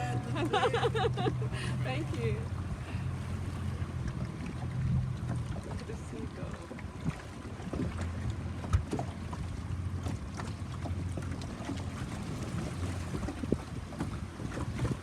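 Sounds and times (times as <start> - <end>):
boat engine running: 0.0 - 15.0
wind on microphone: 11.5 - 15.0.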